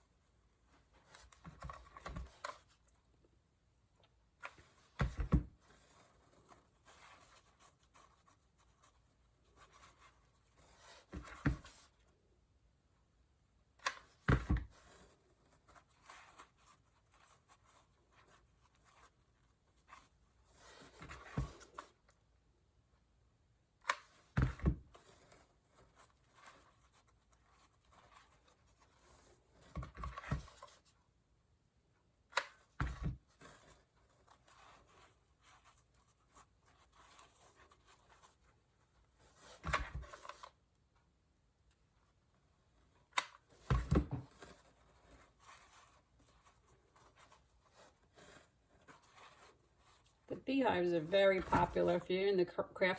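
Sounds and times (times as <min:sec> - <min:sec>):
hands rustling craft materials: 0:32.2 - 0:52.9.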